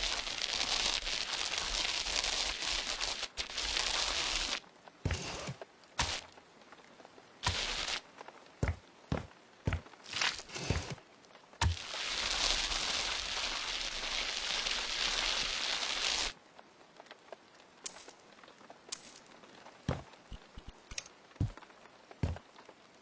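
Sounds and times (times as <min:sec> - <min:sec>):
steady hiss: 0:00.0 - 0:06.3.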